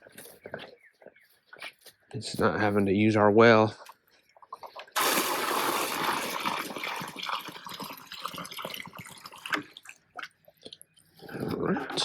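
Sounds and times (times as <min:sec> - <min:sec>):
water gushing into a container: 0:05.0 - 0:10.1.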